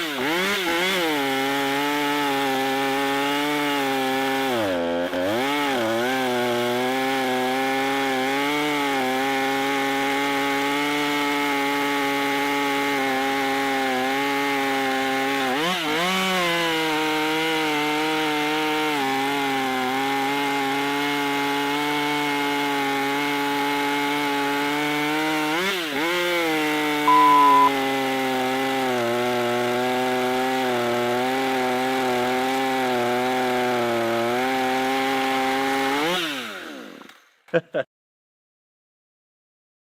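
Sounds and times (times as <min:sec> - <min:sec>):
chainsaw cutting log: 0:00.0 - 0:37.4
short loud beep: 0:27.1 - 0:27.8.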